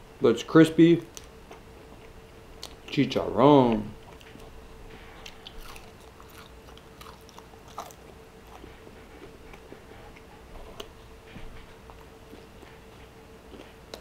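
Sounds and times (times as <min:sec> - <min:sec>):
crunchy chewing of crispy pork: 0:04.0 - 0:14.0.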